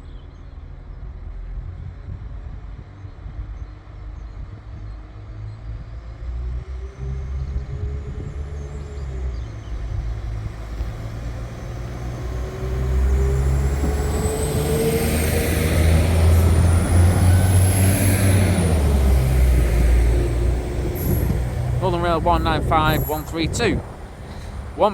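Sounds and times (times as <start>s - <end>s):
train engine hum: 5.7s - 24.9s.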